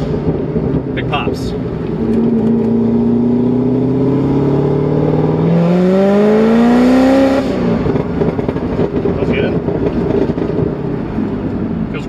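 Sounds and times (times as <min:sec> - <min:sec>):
exhaust pops and crackles: 0:00.0 - 0:02.8, 0:07.4 - 0:12.0
car engine revving: 0:00.0 - 0:12.0.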